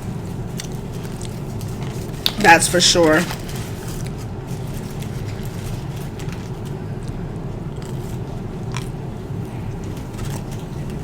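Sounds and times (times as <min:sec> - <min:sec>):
steady low hum: 0:00.0 - 0:11.0
person chewing food: 0:04.0 - 0:11.0.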